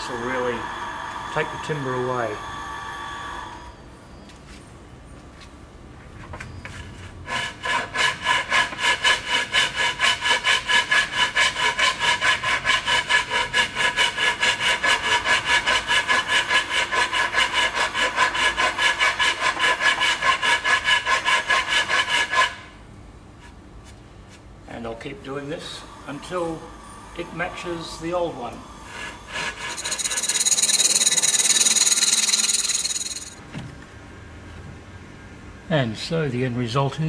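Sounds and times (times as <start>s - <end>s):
wood rasp scraping wood: 7.2s - 22.6s, 29.3s - 33.4s.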